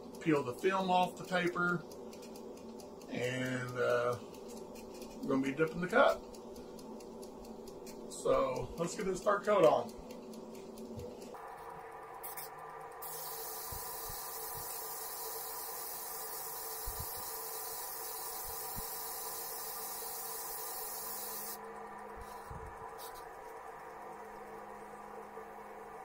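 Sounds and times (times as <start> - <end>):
steady low hum: 0.0 - 26.0
spray gun hissing: 12.2 - 21.6.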